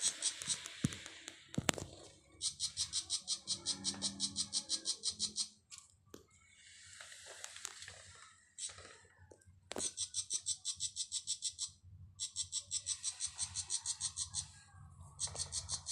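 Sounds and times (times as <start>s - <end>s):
bird harsh chattering calls: 2.4s - 5.6s, 9.8s - 14.6s, 15.2s - 15.9s.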